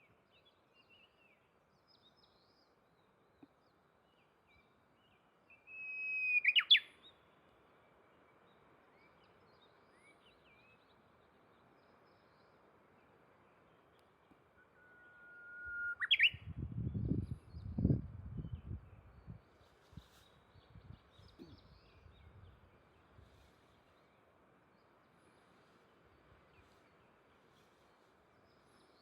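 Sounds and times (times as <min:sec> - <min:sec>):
bird whistling song: 0:05.7 - 0:07.0, 0:14.6 - 0:16.6.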